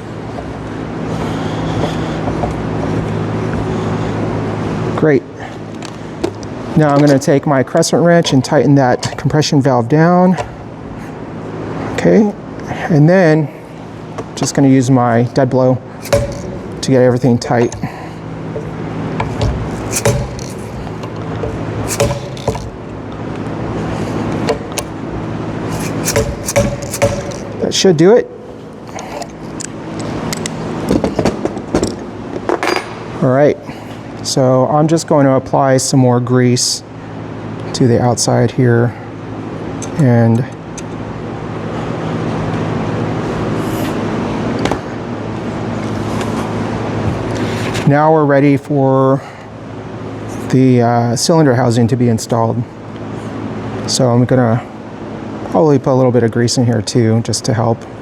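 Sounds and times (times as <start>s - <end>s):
steady low hum: 0.0s - 35.0s
sharp click: 16.0s - 17.9s, 18.6s - 23.0s, 25.7s - 29.8s
hammer striking wrench: 16.0s - 23.1s, 24.2s - 25.0s, 25.7s - 30.5s.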